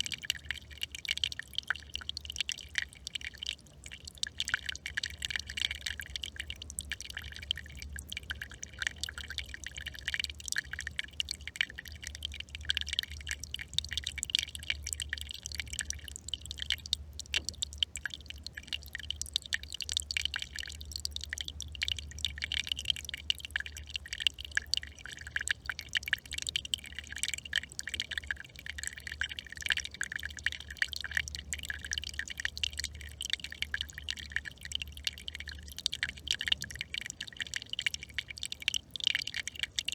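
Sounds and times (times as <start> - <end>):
brook trickling: 0.0 - 39.9.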